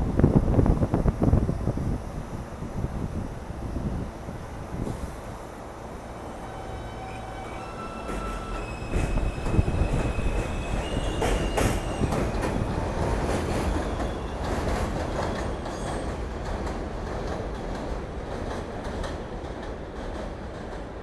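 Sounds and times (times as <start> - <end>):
train wheels rumbling on rails: 0.0 - 21.0
wheel squeals: 6.4 - 12.6.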